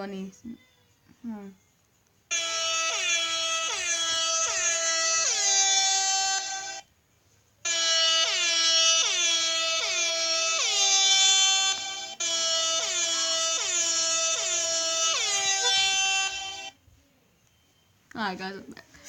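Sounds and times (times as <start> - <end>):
air horn blasts: 2.3 - 6.8, 7.7 - 16.8.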